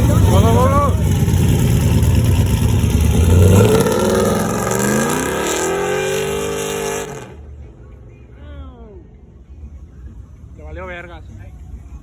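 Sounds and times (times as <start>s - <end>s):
truck engine accelerating: 0.0s - 7.7s.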